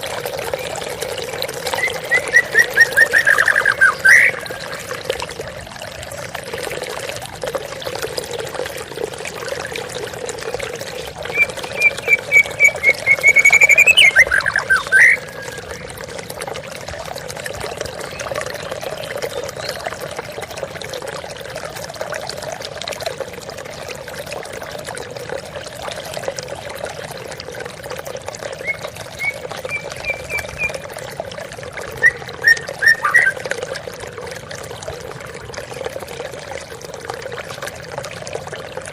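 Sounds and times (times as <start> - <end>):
songbird whistling: 1.8 - 4.6, 11.3 - 15.7, 28.6 - 30.8, 32.0 - 33.4.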